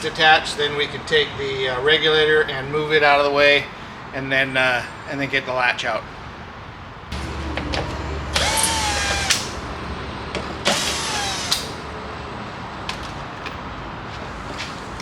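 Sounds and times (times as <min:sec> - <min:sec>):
power window motor whine: 0:07.1 - 0:12.0.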